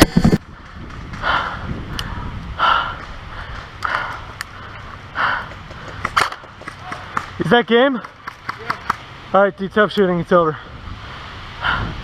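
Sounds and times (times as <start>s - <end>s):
heavy breathing: 1.2s - 7.3s, 10.6s - 12.0s.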